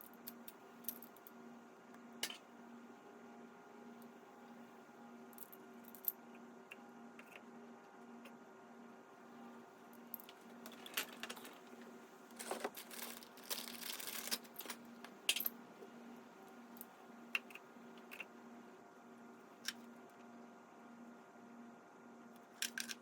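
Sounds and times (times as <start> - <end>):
rustling and crinkling: 10.3 - 15.2.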